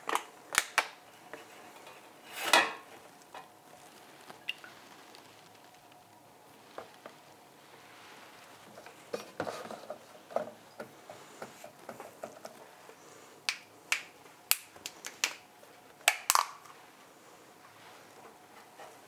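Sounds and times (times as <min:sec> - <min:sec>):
kitchen containers and utensils clicking: 0:16.1 - 0:16.7.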